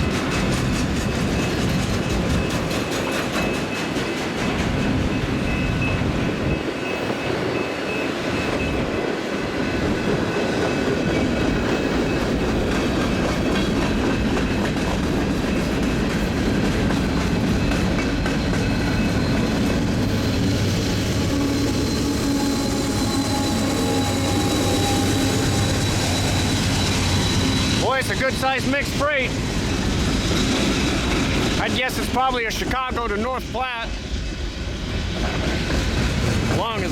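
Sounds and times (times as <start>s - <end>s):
freight train cars clattering: 0.0s - 36.9s
faint wheel squeal: 21.2s - 28.3s.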